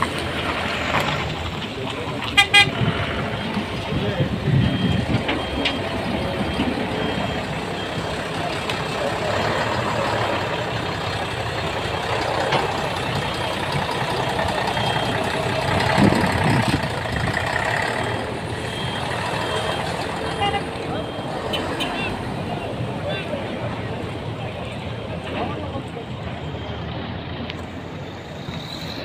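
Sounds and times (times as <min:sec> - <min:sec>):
diesel engines running: 0:00.0 - 0:29.0
reversing alarm beeps: 0:03.3 - 0:16.9, 0:17.6 - 0:22.9, 0:26.0 - 0:27.1.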